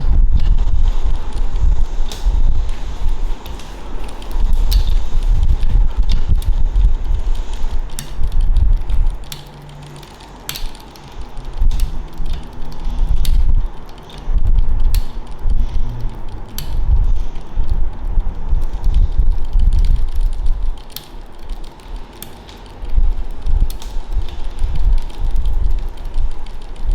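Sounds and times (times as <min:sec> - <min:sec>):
heavy low rumble: 0:00.0 - 0:10.4, 0:11.0 - 0:21.6
bicycle drivetrain clicking: 0:00.0 - 0:26.9.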